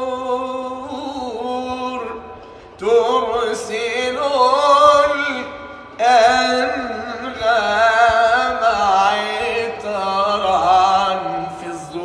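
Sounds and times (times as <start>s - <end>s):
breath: 2.4s - 2.8s
man chanting unaccompanied: 2.8s - 12.0s.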